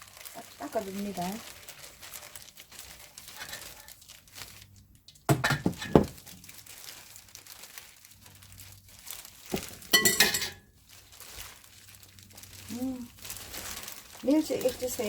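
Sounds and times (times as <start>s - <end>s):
herbs rustling in a bowl: 0.0s - 15.0s.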